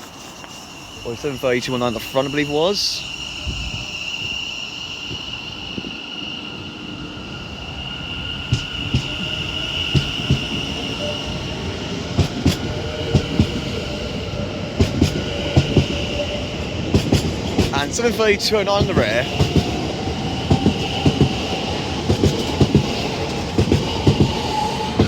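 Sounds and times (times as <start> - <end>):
electric train traction whine: 0.0 - 25.0
wheels clicking over rail joints: 20.5 - 25.0.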